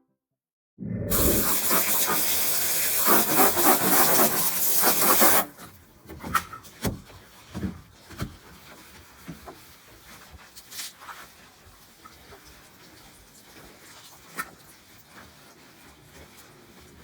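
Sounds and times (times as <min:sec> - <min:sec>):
brush scrubbing a surface: 0:01.1 - 0:05.6, 0:06.6 - 0:17.0
faint rubs and taps: 0:05.6 - 0:16.5.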